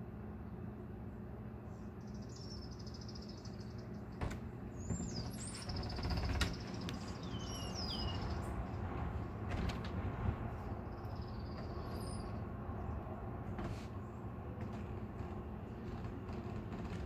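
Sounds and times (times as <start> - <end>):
songbird trilling and whistling: 2.0 - 4.0, 4.8 - 8.4.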